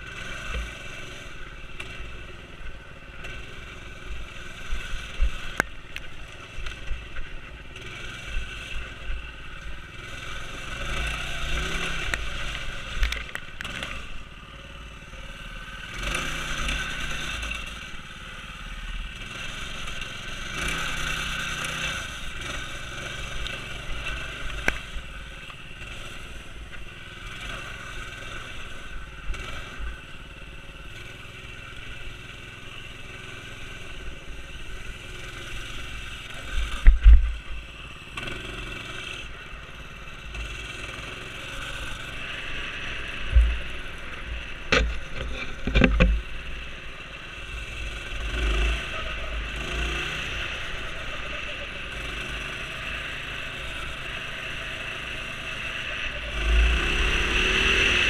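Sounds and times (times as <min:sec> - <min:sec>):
minibike engine revving: 0:00.0 - 0:58.0
scraping and clattering: 0:44.7 - 0:46.2.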